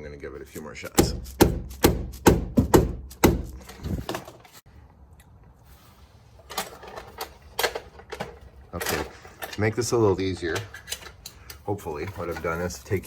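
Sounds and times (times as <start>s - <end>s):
rubber mallet striking metal: 0.9s - 3.7s.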